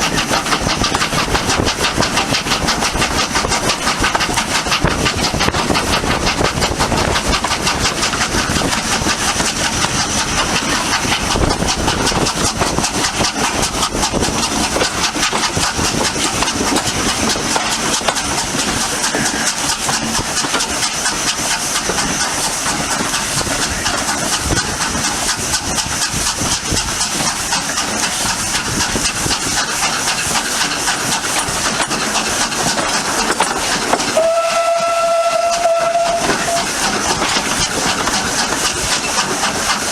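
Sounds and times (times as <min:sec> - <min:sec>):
steam locomotive exhaust beats: 0:00.0 - 0:39.9
steam whistle: 0:34.1 - 0:36.8.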